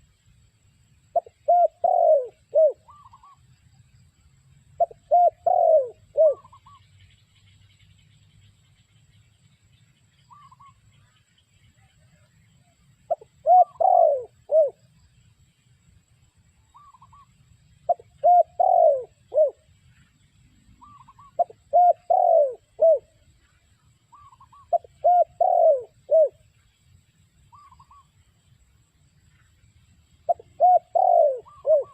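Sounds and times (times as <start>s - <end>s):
dove cooing: 1.2s - 3.4s, 4.8s - 6.8s, 13.1s - 14.8s, 17.9s - 19.6s, 20.8s - 23.1s, 24.1s - 26.4s, 30.3s - 31.9s.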